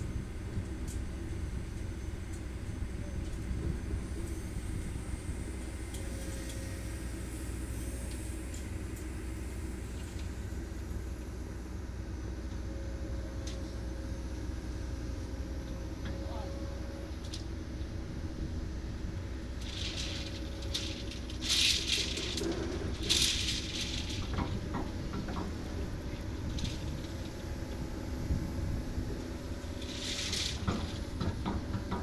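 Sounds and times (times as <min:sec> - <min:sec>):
diesel engine low rumble: 0:00.0 - 0:32.0.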